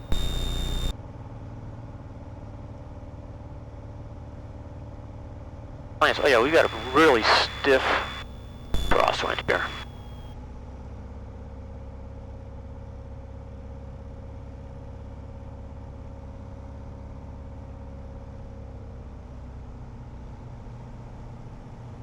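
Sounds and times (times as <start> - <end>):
faint steady whine: 0.0 - 0.9, 6.0 - 10.4.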